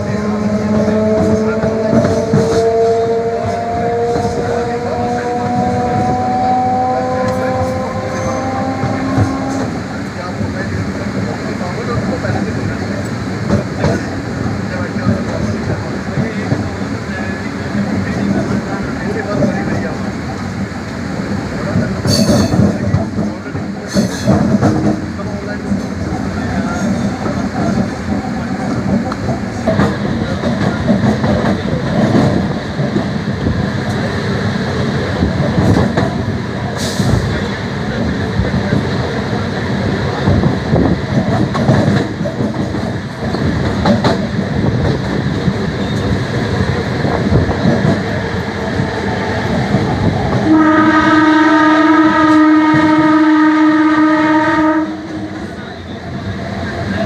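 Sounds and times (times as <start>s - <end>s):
train rumbling along track: 0.0s - 57.0s
train horn: 0.1s - 9.8s, 50.4s - 55.6s.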